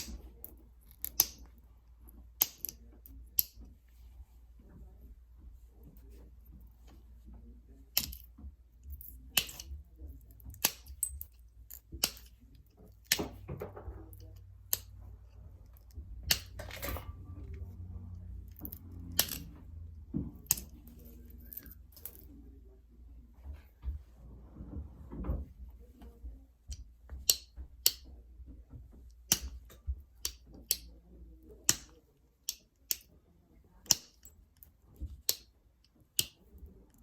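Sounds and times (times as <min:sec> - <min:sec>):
stone knapping clicks: 0:00.0 - 0:00.3, 0:00.9 - 0:01.6, 0:02.3 - 0:02.8, 0:03.4 - 0:03.6, 0:08.0 - 0:08.3, 0:10.4 - 0:13.4, 0:14.1 - 0:15.0, 0:26.7 - 0:28.1, 0:29.2 - 0:30.9, 0:31.6 - 0:33.1, 0:33.8 - 0:37.0.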